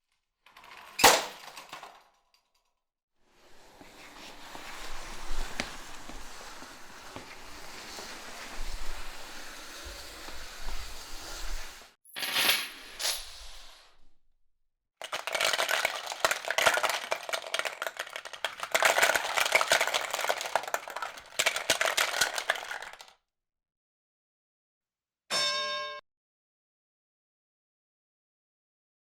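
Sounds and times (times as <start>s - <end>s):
small hard objects clattering: 15.0s - 23.1s
short chime: 25.3s - 26.0s.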